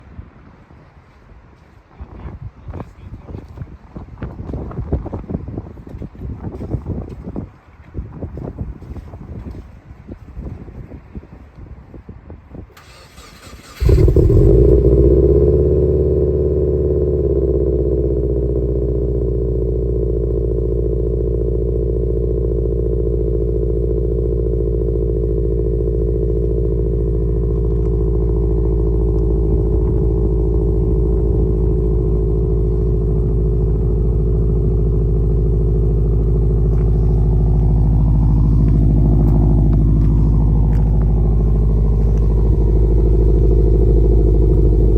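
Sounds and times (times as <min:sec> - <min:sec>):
car engine idling: 0:12.8 - 0:44.9.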